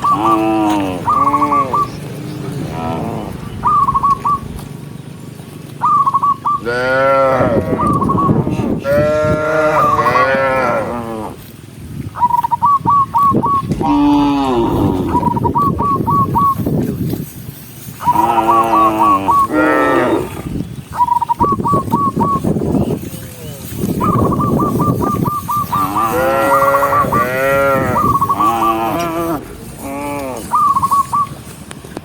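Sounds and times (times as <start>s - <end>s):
cattle mooing: 0.0s - 1.9s, 2.5s - 3.4s, 6.6s - 8.2s, 8.8s - 11.4s, 13.7s - 15.6s, 18.1s - 20.5s, 25.7s - 30.7s.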